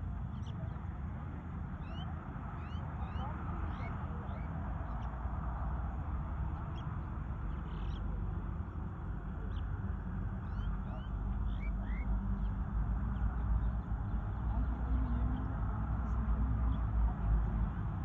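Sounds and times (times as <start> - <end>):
steady low rumble: 0.0 - 18.0
birds chirping and whistling: 10.5 - 12.1.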